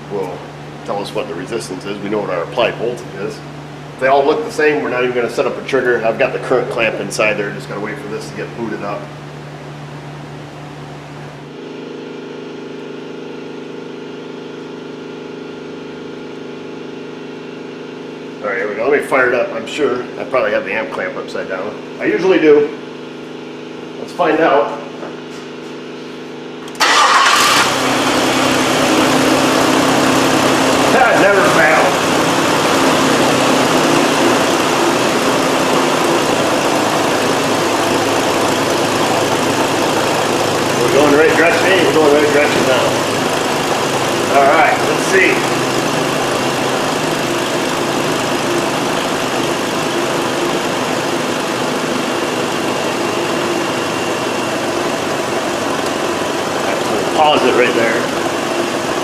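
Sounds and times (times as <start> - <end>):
engine idling: 26.6 - 59.0.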